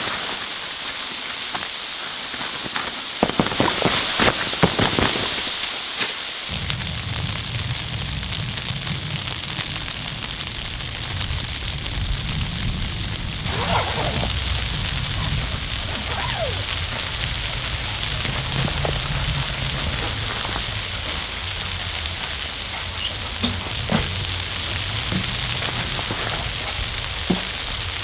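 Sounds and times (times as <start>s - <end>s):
steady hiss: 0.0s - 28.0s
firewood crackling: 2.0s - 28.0s
low rumble: 6.5s - 28.0s
sharp pops: 13.4s - 21.4s.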